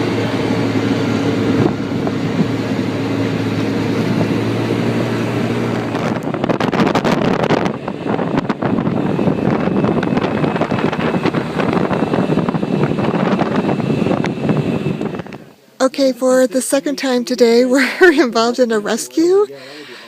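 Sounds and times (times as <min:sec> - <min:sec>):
wind buffeting microphone: 0:00.0 - 0:15.5
atv engine running: 0:00.0 - 0:16.1.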